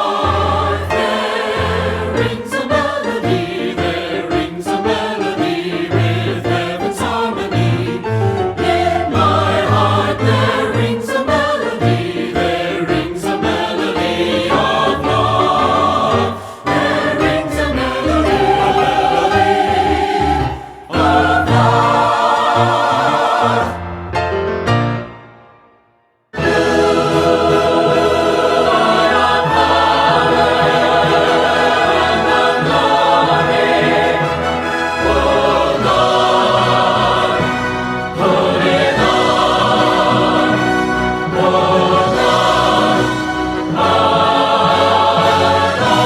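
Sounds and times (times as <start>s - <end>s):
choir singing worship song: 0.0s - 24.0s, 26.4s - 46.0s.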